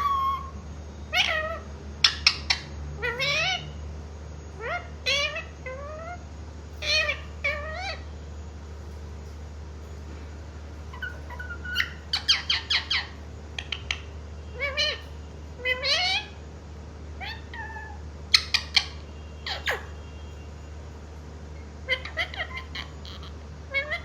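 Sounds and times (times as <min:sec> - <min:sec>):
parrot squawking and chirping: 0:00.0 - 0:03.8, 0:04.5 - 0:08.1, 0:10.8 - 0:16.4, 0:17.2 - 0:20.0, 0:21.6 - 0:24.0.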